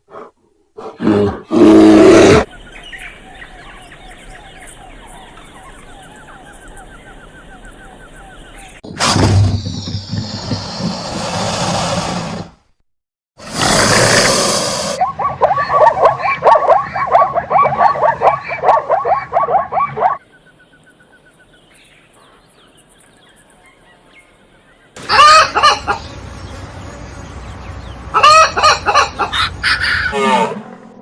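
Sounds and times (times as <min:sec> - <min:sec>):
chicken clucking: 0:25.0 - 0:26.2, 0:28.1 - 0:30.2.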